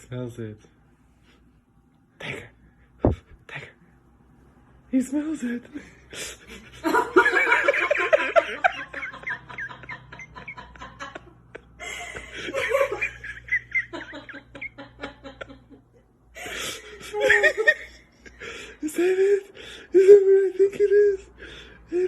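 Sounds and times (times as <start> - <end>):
person laughing hard: 6.2 - 15.8, 16.4 - 21.3.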